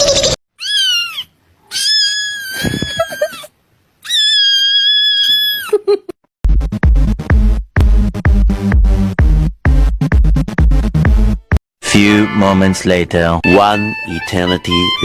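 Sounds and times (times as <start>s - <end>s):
cat meowing: 0.6s - 3.4s, 4.0s - 5.7s.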